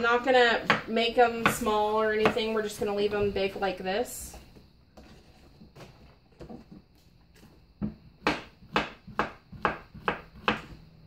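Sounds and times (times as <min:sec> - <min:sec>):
knife chopping on cutting board: 0:07.8 - 0:10.8.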